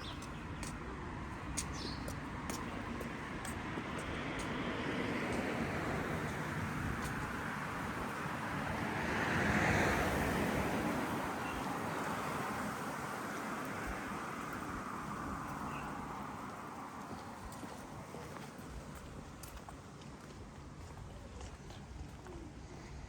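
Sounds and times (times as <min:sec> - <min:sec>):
traffic hum: 0:00.0 - 0:23.0
car passing by: 0:03.9 - 0:17.4.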